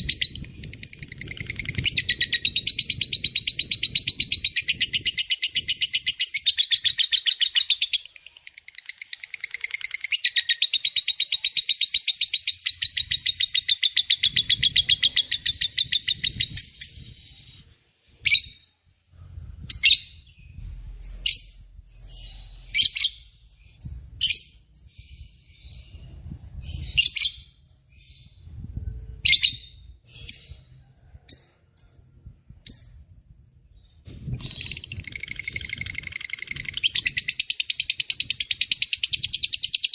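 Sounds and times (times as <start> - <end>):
lovebird chattering trill: 34.4 - 39.9.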